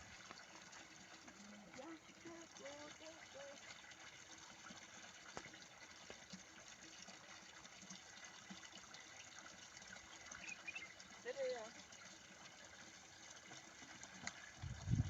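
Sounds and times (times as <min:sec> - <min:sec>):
faint running water: 0:00.0 - 0:15.0.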